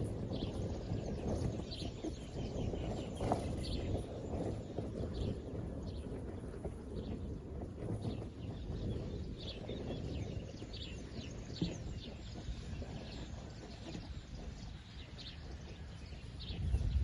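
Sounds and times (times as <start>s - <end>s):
low rumble of wind: 0.0s - 17.0s
small birds chirping: 0.0s - 17.0s.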